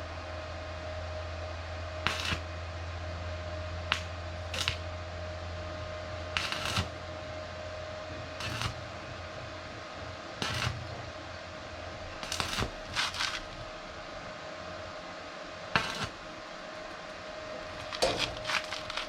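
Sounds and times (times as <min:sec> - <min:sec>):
low electrical hum: 0:00.0 - 0:19.0
tools clicking and knocking: 0:17.9 - 0:19.0.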